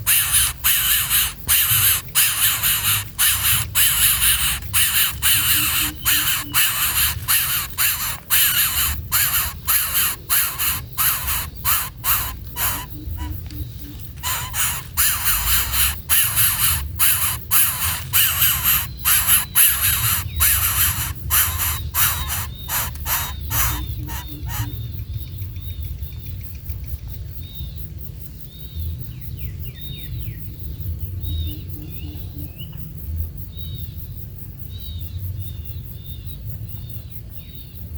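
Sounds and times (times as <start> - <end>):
birds giving harsh rasping calls: 0.0 - 24.8.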